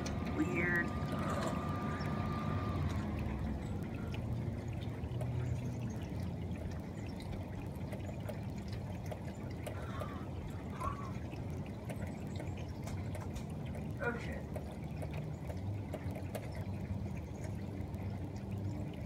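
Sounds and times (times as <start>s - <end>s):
rain falling and dripping: 0.0s - 19.0s.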